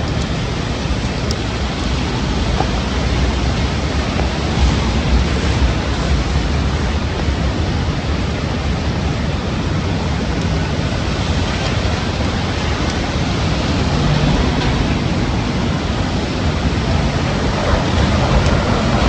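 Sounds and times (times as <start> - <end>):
raindrop ticks: 0.0 - 5.8, 16.5 - 19.0
heavy rain pouring: 0.0 - 19.0
strong wind rumble: 0.0 - 19.0.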